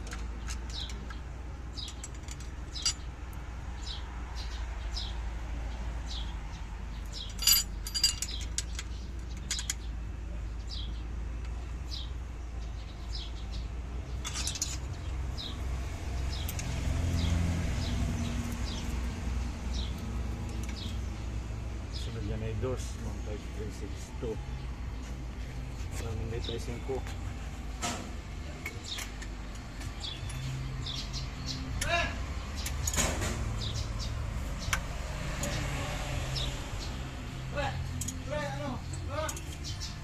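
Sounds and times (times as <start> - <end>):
hand tools clinking on metal: 7.1 - 9.9, 14.2 - 15.0, 37.8 - 39.8.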